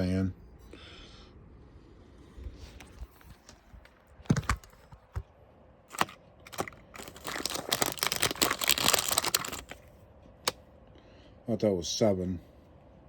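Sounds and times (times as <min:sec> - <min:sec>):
dense clicking and crinkling: 0:02.7 - 0:05.3, 0:05.9 - 0:10.6.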